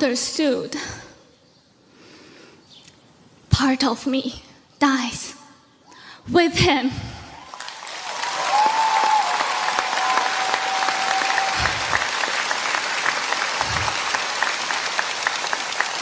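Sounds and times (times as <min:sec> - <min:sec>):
audience applauding: 0:07.4 - 0:16.0
long held cheer: 0:07.4 - 0:16.0.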